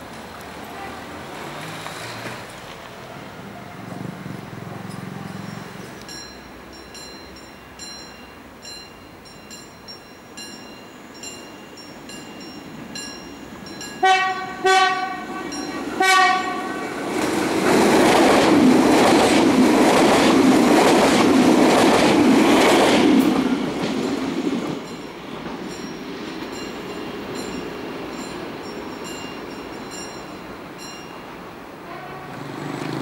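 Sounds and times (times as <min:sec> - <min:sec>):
train wheels rushing on rails: 0:00.0 - 0:33.0
train horn blasts: 0:14.0 - 0:17.0, 0:31.8 - 0:32.7.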